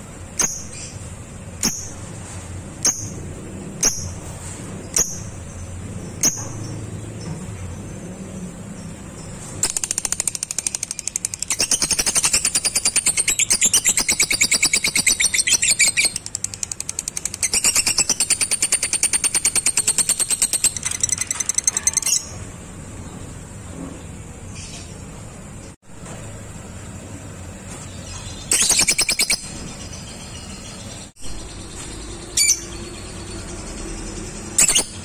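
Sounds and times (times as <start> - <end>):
lovebird chattering trill: 9.6 - 22.4.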